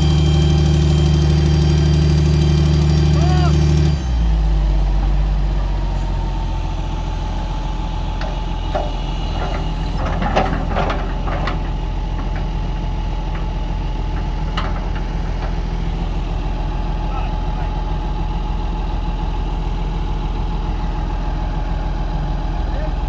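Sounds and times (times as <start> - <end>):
diesel engine idling: 0.0 - 23.0
metallic clanks and knocks: 8.2 - 15.6.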